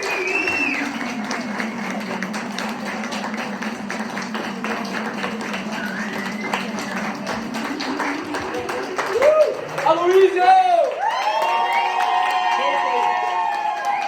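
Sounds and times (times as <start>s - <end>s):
person whooping or whistling: 0.0s - 1.1s
audience clapping: 0.0s - 14.0s.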